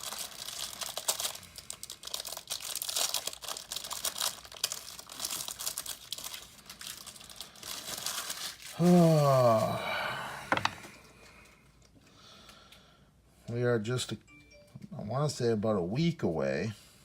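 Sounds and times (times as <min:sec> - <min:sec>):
wrapper crinkling and rustling: 0:00.0 - 0:09.8.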